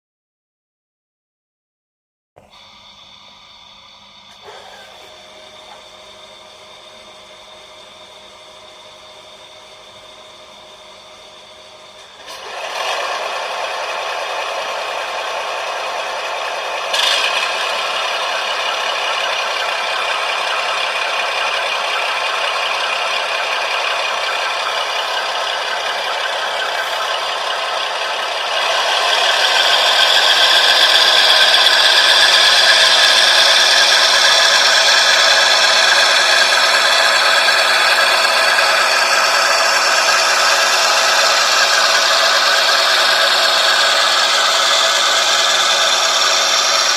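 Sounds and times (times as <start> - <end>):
model train rattling on track: 12.0 - 46.9.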